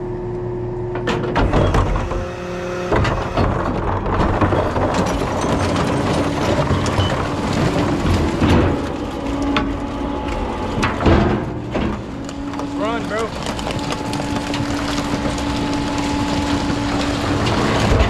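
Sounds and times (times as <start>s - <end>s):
truck engine and hydraulics: 0.0s - 18.0s
sharp knocks and clanks: 1.0s - 9.7s, 10.3s - 18.0s.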